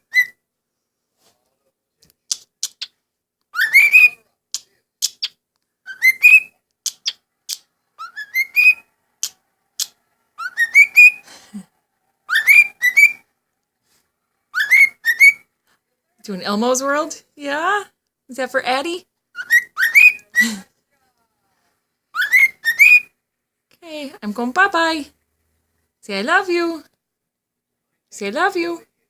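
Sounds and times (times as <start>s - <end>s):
parrot chirps: 0.0s - 0.4s, 2.3s - 11.3s, 12.3s - 13.3s, 14.5s - 15.5s, 19.3s - 20.6s, 22.1s - 23.2s
parrot whistling rising call: 3.6s - 4.2s, 8.0s - 8.9s, 10.4s - 11.2s, 12.3s - 13.2s, 14.5s - 15.4s, 19.4s - 20.3s, 22.2s - 23.1s.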